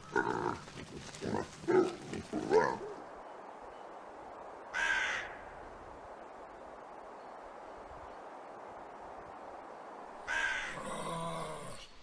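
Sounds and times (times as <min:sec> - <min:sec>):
pigs grunting: 0:00.0 - 0:03.0
rook cawing: 0:04.7 - 0:05.6, 0:10.2 - 0:10.9.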